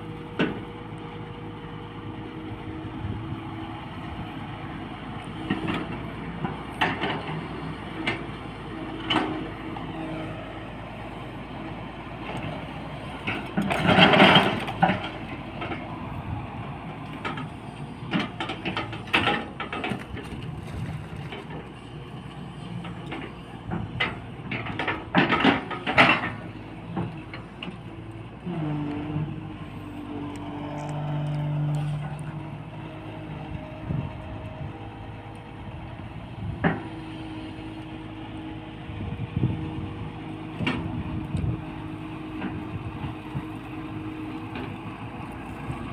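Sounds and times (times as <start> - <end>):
excavator engine running: 0.0 - 45.9
loud clanking and clattering: 13.2 - 15.8.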